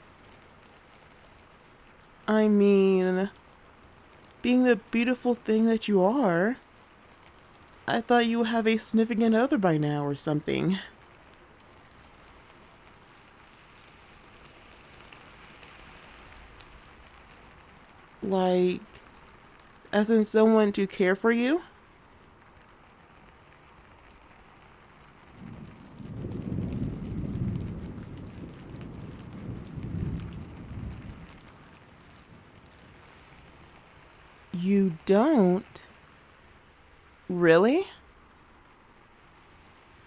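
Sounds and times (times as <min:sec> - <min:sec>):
rain patter: 0:00.0 - 0:40.0
thunder rumbling: 0:23.2 - 0:40.0.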